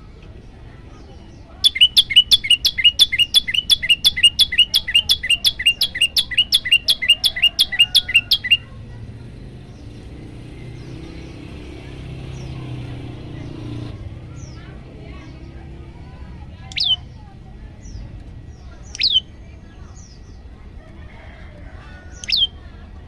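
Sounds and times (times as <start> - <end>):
bird chirping rapidly: 1.6 - 8.8, 16.6 - 17.2, 18.6 - 20.3, 22.1 - 22.6.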